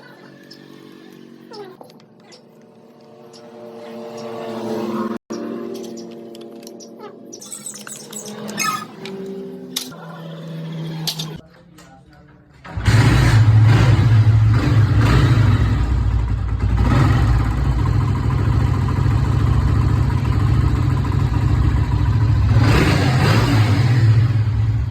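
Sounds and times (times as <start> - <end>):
motorcycle engine running: 12.6 - 24.9.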